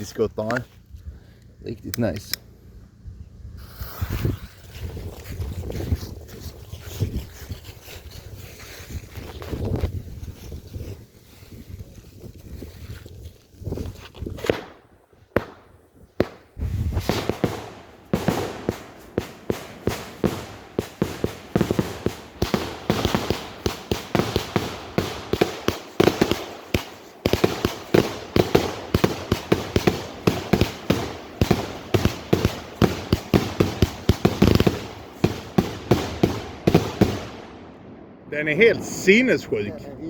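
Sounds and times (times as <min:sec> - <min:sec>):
fireworks launching and bursting: 0:03.6 - 0:11.7, 0:14.3 - 0:39.7.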